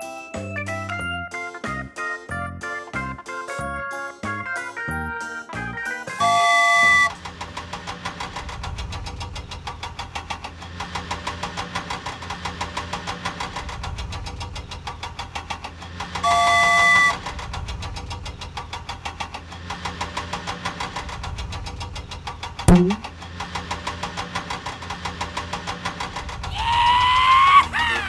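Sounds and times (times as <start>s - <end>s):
loud horn blast: 6.2s - 7.1s, 16.2s - 17.2s
engine chugging: 6.2s - 26.7s.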